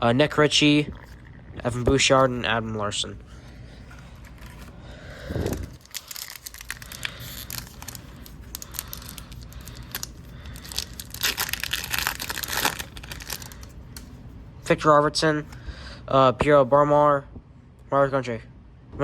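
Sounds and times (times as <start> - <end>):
foil pack tearing and crinkling: 4.0 - 13.8.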